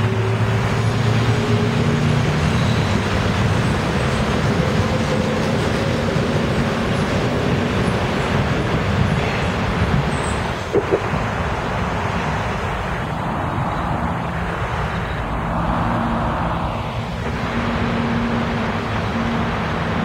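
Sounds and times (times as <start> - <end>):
approaching train: 0.0 - 20.0
road traffic: 0.0 - 20.0
train wheels rumbling on rail: 0.0 - 20.0.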